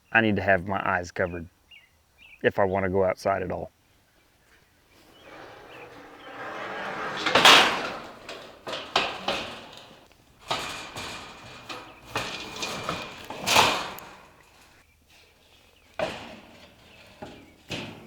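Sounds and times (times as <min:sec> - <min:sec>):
knocks and bangs: 0:05.1 - 0:14.5.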